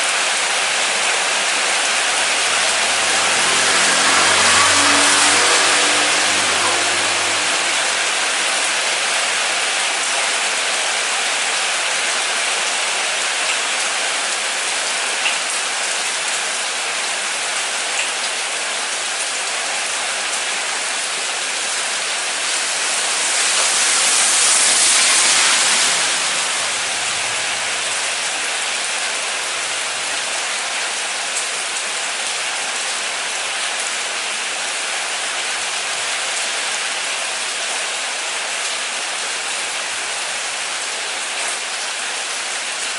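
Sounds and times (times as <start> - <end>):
heavy rain falling: 0.0 - 42.9
low hum: 1.6 - 9.3, 21.5 - 29.0.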